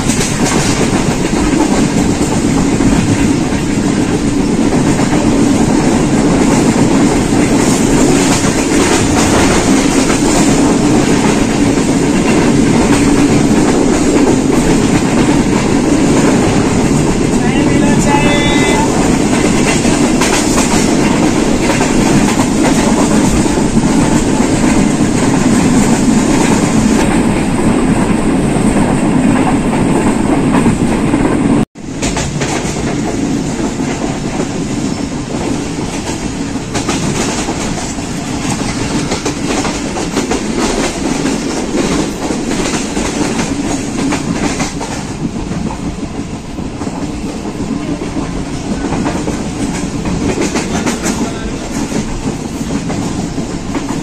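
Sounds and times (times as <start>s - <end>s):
train rumble and rush: 0.0s - 54.0s
wheels clicking over rail joints: 28.8s - 34.7s.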